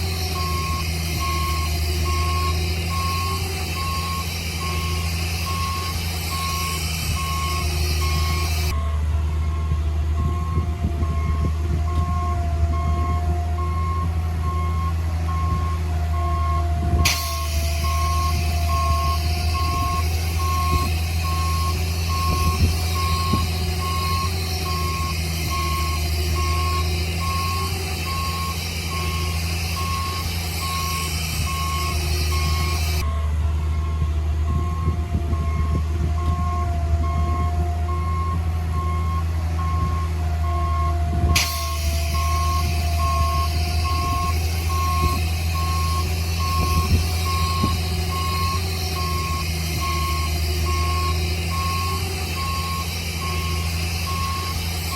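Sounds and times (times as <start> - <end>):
diesel engine running: 0.0 - 54.9
reversing alarm beeping: 0.0 - 54.9.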